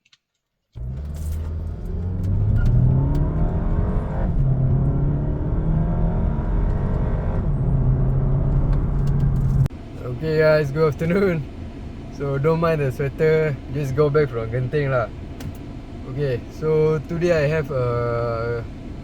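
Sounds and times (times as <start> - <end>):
car engine accelerating: 0.8 - 10.2.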